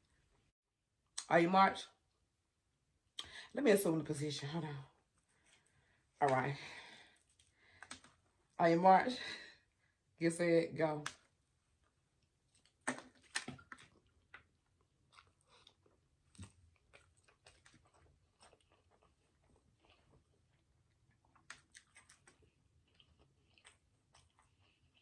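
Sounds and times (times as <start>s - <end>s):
quiet chewing: 7.0s - 8.3s, 11.8s - 25.0s.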